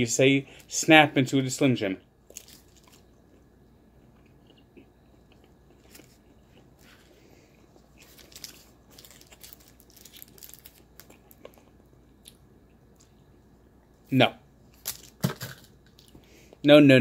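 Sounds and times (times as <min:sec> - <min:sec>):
man chewing with wet clicks: 0:02.2 - 0:07.0, 0:09.1 - 0:13.3.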